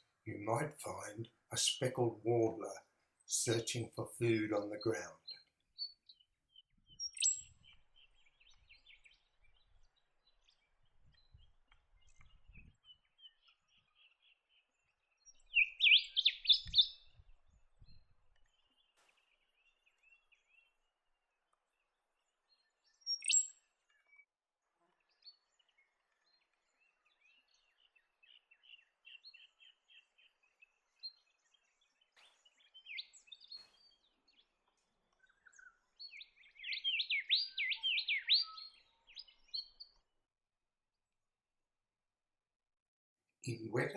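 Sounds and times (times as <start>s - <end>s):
bird twittering: 3.5s - 9.7s, 15.2s - 17.2s, 23.0s - 23.6s, 31.1s - 34.5s, 35.2s - 40.0s.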